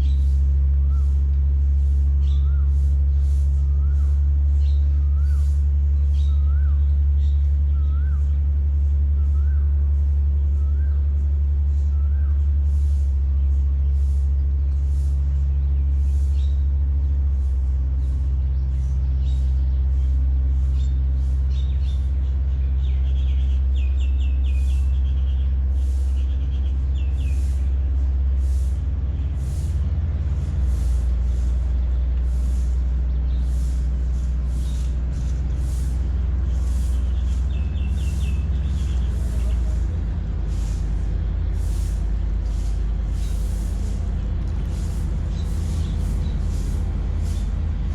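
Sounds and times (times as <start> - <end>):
birds chirping: 0.0 - 47.9
tugboat engine humming: 0.0 - 47.9
regular hiss: 25.8 - 47.9.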